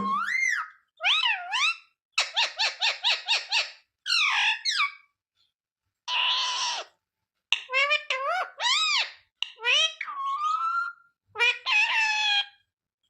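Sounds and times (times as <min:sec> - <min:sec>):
parrot calling and chirping: 0:00.0 - 0:05.0, 0:07.6 - 0:12.5.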